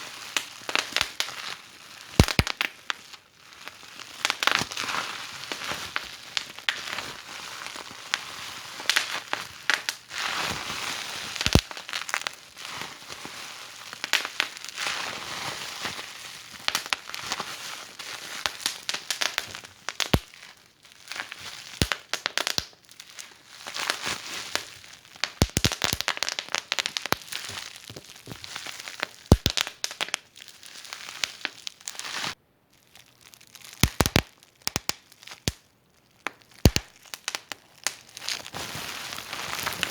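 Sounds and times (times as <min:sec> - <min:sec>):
wood fire crackling: 0:02.2 - 0:02.8, 0:11.4 - 0:12.2, 0:18.5 - 0:20.3, 0:24.6 - 0:31.6, 0:33.8 - 0:35.6, 0:36.2 - 0:39.9.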